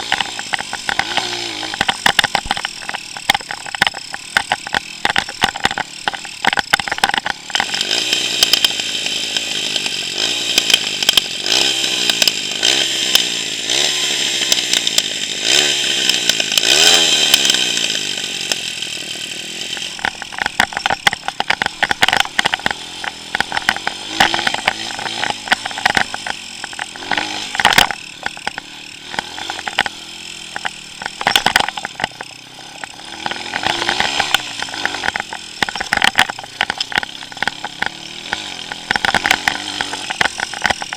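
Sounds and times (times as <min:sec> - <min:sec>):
knocks and rattles: 0:00.0 - 0:08.8, 0:19.7 - 0:40.9
motorbike engine revving: 0:00.0 - 0:40.9.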